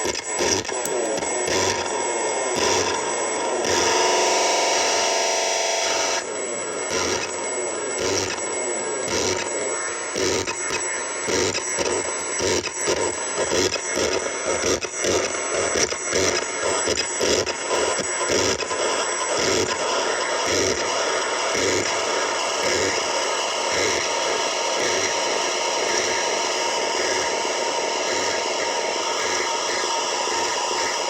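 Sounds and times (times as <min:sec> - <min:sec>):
buzzing pitched tone: 0:01.3 - 0:13.2
choppy stuttering electronic noise: 0:03.7 - 0:06.2.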